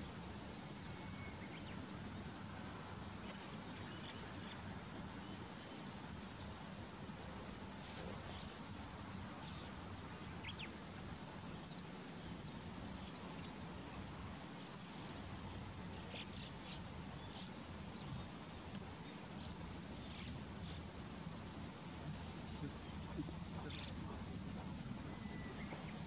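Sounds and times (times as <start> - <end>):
bird calls and chirps: 0.0 - 1.9, 9.4 - 26.0
low background hum: 0.0 - 26.0.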